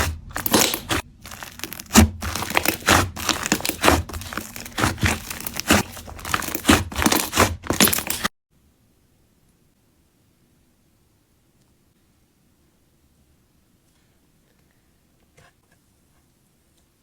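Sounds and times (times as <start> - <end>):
hands squishing clay slime: 0.0 - 8.3.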